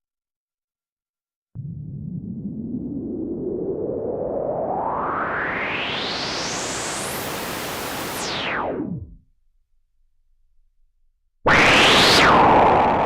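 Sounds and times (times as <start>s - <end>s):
synthesizer noise sweep: 1.6s - 9.2s.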